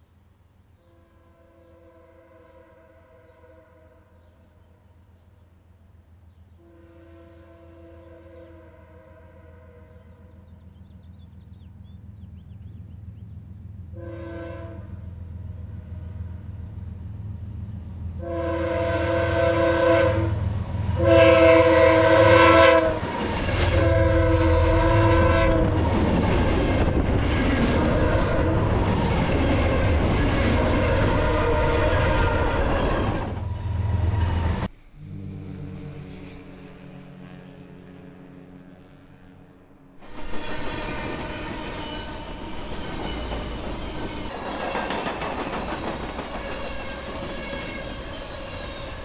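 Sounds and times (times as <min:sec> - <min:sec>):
train air horn blasts: 0:00.8 - 0:04.4, 0:06.6 - 0:10.4, 0:13.9 - 0:16.5, 0:18.2 - 0:26.0, 0:26.6 - 0:28.9, 0:29.6 - 0:38.2, 0:40.0 - 0:44.3
diesel freight train rumble: 0:05.0 - 0:34.7, 0:40.0 - 0:49.0
train cars roaring and clattering: 0:10.0 - 0:34.7, 0:40.0 - 0:49.0.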